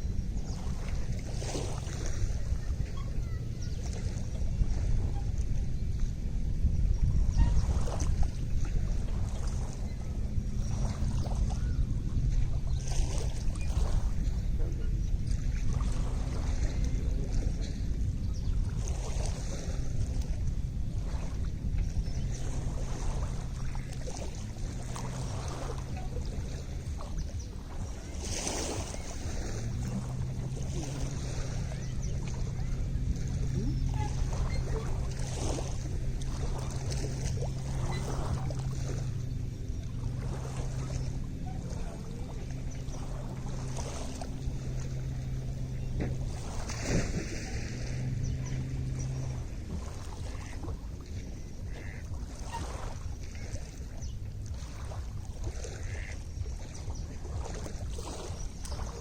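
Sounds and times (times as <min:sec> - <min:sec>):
lakeside water: 0:00.0 - 0:59.0
small waves lapping: 0:00.0 - 0:59.0
steady low hum: 0:00.0 - 0:59.0
wind on microphone: 0:00.0 - 0:59.0
water splash: 0:22.4 - 0:53.6.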